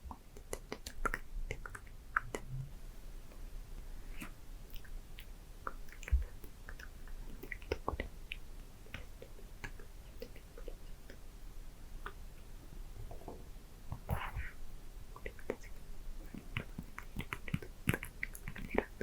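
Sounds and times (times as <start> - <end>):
wet mouth clicks: 0.1 - 2.7, 4.1 - 11.2, 15.2 - 19.0.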